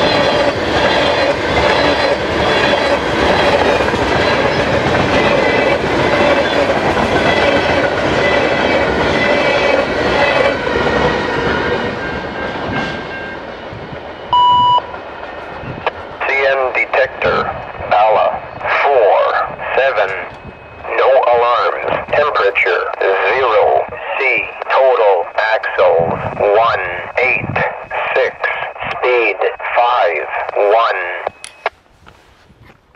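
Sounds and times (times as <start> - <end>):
loud electronic beep: 14.3 - 14.9.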